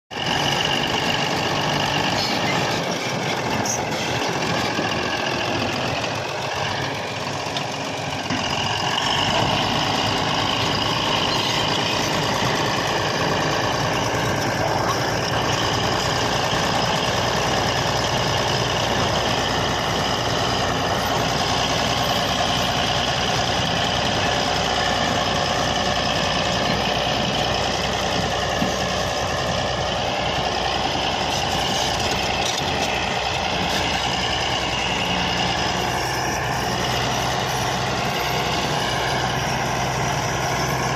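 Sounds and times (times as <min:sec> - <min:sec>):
bulldozer diesel engine running: 0:00.1 - 0:40.9.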